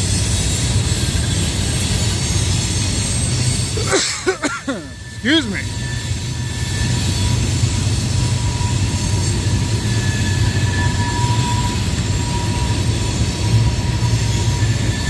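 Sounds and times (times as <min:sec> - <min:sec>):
freight train rumbling: 0:00.0 - 0:15.0
faint wheel squeal: 0:04.8 - 0:15.0.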